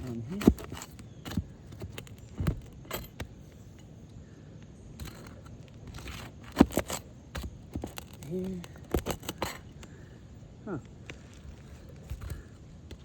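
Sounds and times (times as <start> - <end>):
metal clink: 0.0 - 3.9, 5.0 - 8.2
metal tool scraping shingles: 0.0 - 3.9, 5.0 - 10.1, 11.1 - 13.0.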